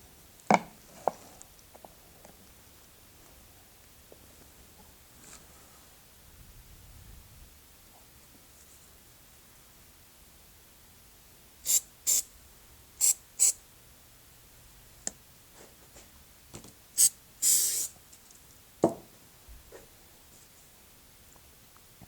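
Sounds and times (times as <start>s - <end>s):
wooden piece knocking down: 18.8s - 19.1s.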